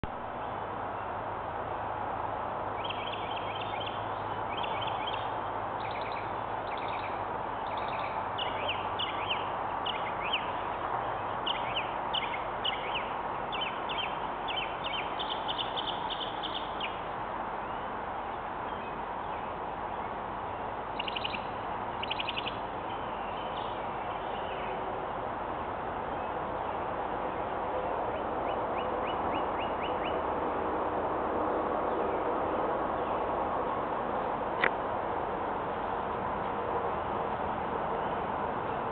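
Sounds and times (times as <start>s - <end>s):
steady background hiss: 0.1s - 38.9s
birds chirping: 2.8s - 24.9s.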